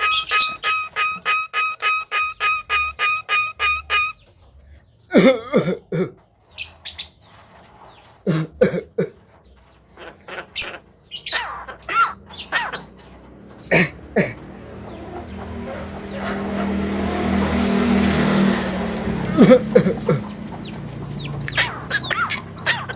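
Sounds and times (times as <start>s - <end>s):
regular beeps: 0.0s - 4.2s
myna harsh calls and whistles: 0.0s - 4.3s, 21.2s - 22.9s.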